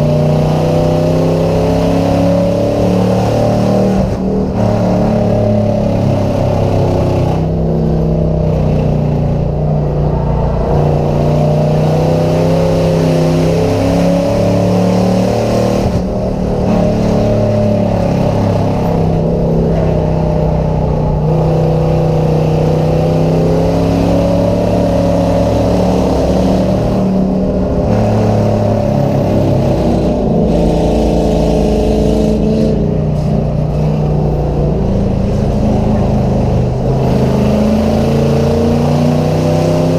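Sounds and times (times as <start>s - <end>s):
race car engines: 0.0s - 39.9s.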